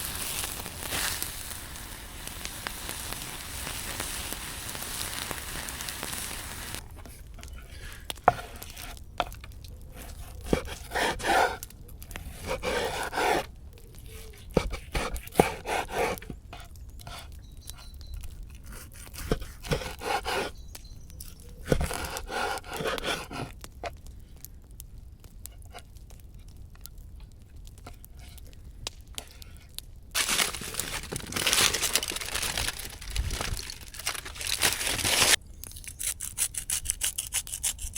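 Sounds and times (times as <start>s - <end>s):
frying sizzle: 0.0s - 6.8s.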